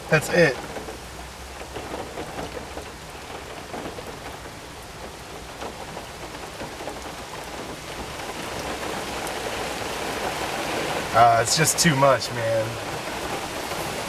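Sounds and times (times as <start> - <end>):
heavy rain pattering: 0.0 - 14.0.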